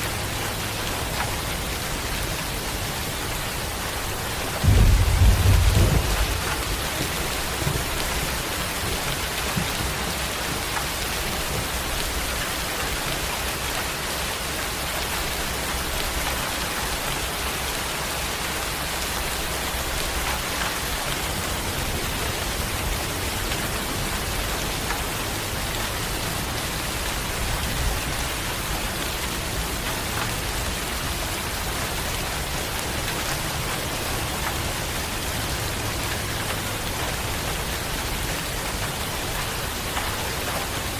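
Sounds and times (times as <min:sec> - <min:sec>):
dense rain hissing: 0:00.0 - 0:40.9
low thunder rumble: 0:04.2 - 0:10.0.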